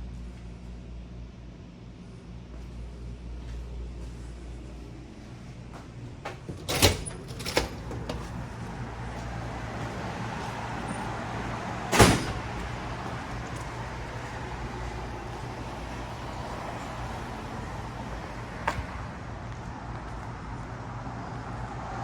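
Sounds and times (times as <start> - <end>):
low vehicle rumble: 0.0 - 22.0
door shutting thumps: 11.9 - 12.6.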